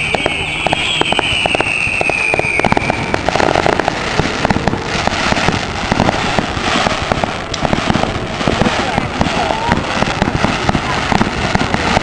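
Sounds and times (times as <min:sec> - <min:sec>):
firework high whistle: 0:00.0 - 0:07.0
fireworks crackling pops and bangs: 0:00.0 - 0:12.0.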